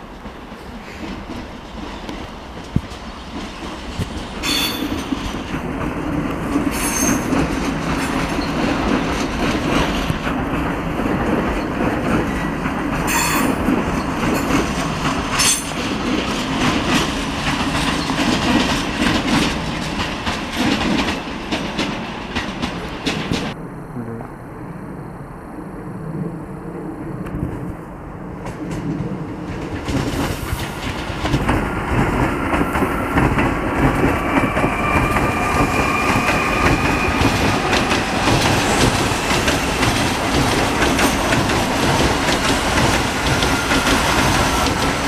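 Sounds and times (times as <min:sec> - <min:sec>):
wheels rumbling on rails: 0:00.0 - 0:45.0
high-pitched wheel squeals: 0:34.1 - 0:37.6.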